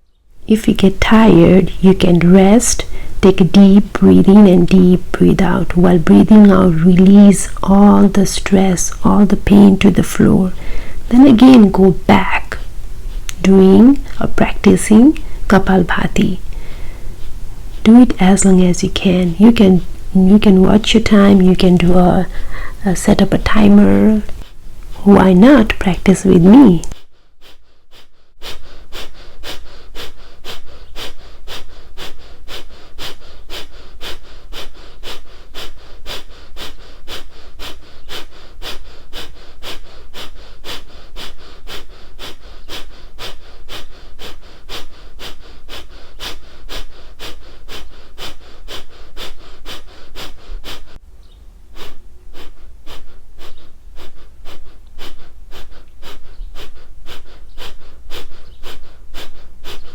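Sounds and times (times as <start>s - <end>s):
forceful nasal exhalations: 10.5s - 11.1s, 16.4s - 17.8s, 22.2s - 22.9s, 26.8s - 51.0s, 51.7s - 59.9s.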